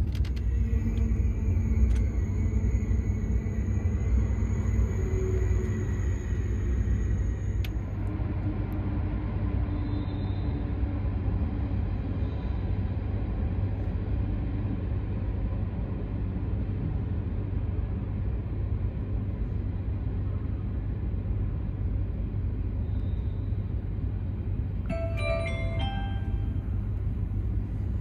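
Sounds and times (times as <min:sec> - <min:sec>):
train coaches rumbling past: 0:00.0 - 0:28.0
multi-note chime: 0:24.9 - 0:26.9.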